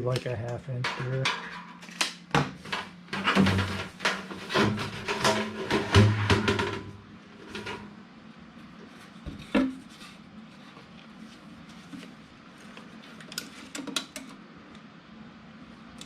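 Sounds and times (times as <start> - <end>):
tools and duct parts clattering: 0.7 - 8.0.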